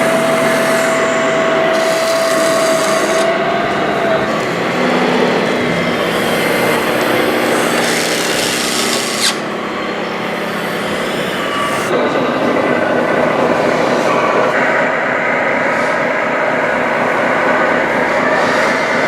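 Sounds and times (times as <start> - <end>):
small electric motors grinding: 0.0 - 11.9.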